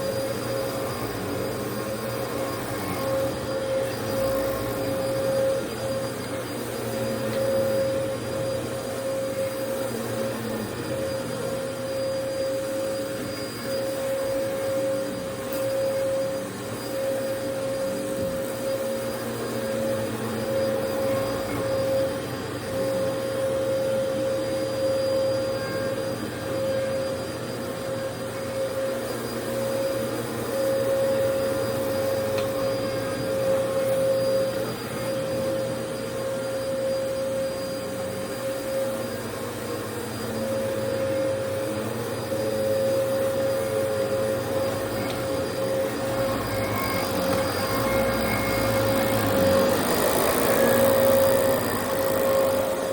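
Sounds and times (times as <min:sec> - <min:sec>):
vacuum cleaner running: 0:00.0 - 0:52.9.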